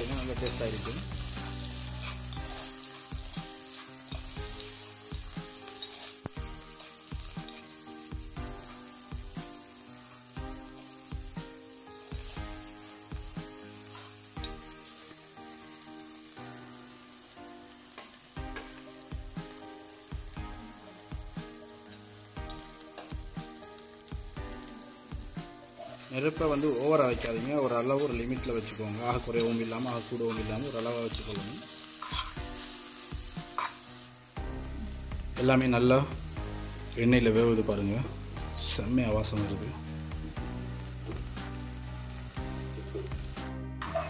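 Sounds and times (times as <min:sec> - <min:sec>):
vegetables sizzling in hot oil: 0:00.0 - 0:44.0.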